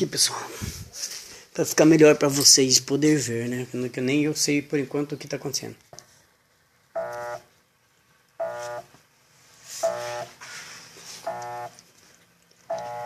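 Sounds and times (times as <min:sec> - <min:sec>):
washing machine motor humming: 0:06.9 - 0:07.5, 0:08.4 - 0:09.0, 0:09.8 - 0:12.0, 0:12.6 - 0:13.0.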